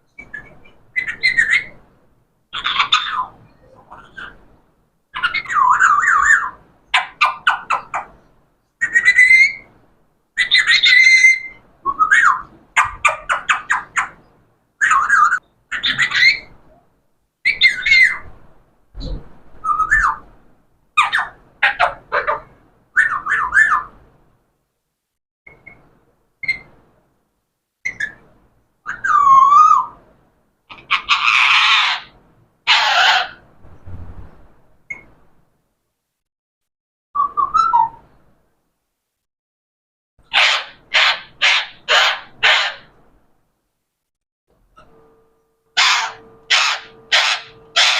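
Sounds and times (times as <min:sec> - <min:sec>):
parrot squawking: 0:00.2 - 0:01.8, 0:02.5 - 0:04.4, 0:05.1 - 0:08.1, 0:10.4 - 0:14.2, 0:14.8 - 0:16.5, 0:17.5 - 0:18.2, 0:21.0 - 0:23.9, 0:28.9 - 0:30.0, 0:30.7 - 0:33.4, 0:40.2 - 0:42.9, 0:45.8 - 0:47.9
parrot whistling and chattering: 0:00.2 - 0:01.8, 0:02.6 - 0:04.4, 0:08.8 - 0:09.7, 0:10.4 - 0:14.2, 0:17.5 - 0:18.2, 0:21.0 - 0:23.9, 0:28.9 - 0:30.0, 0:32.7 - 0:33.4, 0:37.2 - 0:38.0, 0:40.3 - 0:42.9, 0:45.8 - 0:47.9.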